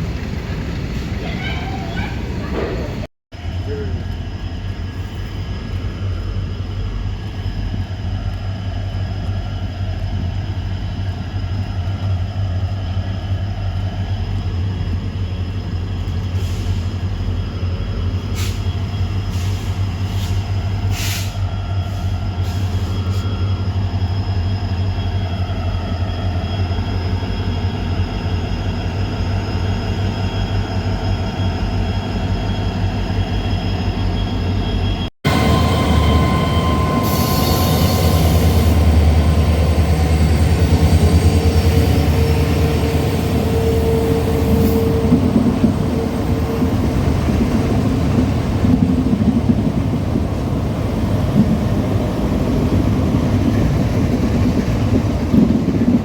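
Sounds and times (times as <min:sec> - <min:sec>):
diesel locomotive engine drone: 0:00.0 - 0:56.0
rolling stock rumble and rattle: 0:00.0 - 0:56.0
high-pitched wheel squeals: 0:22.1 - 0:48.9.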